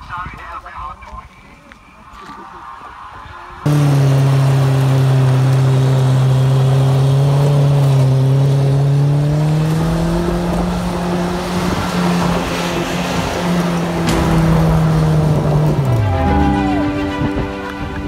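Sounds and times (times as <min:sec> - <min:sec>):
car engine revving high: 0:03.6 - 0:17.6.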